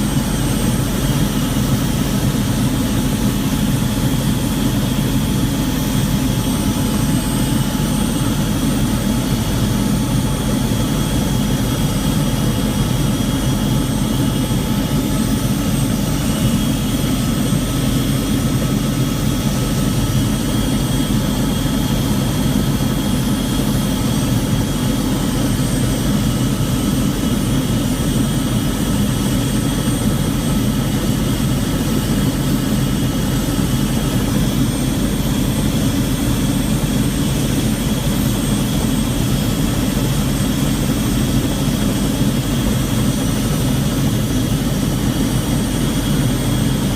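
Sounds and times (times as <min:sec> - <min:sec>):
helicopter engine and rotor rumble: 0:00.0 - 0:46.9.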